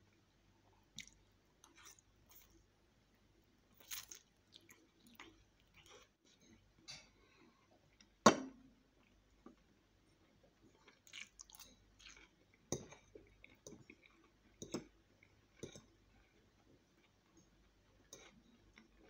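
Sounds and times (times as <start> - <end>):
close-up chewing: 3.7 - 8.1, 10.6 - 19.0.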